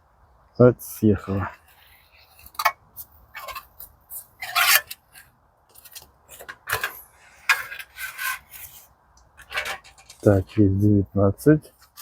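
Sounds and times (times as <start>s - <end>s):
metal tool scraping metal: 1.3s - 5.3s, 6.4s - 8.8s, 9.4s - 10.4s.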